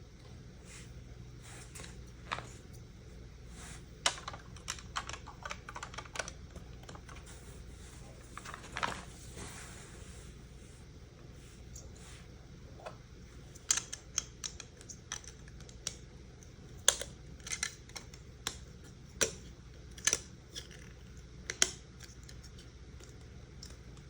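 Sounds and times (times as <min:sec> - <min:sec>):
plastic toy bricks clicking: 0:13.6 - 0:16.0.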